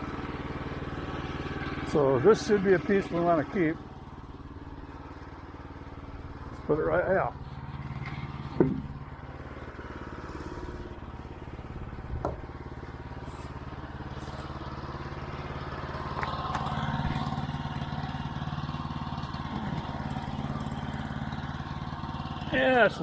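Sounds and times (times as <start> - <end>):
sawmill engine running: 0.0 - 23.0
knock: 8.6 - 8.9.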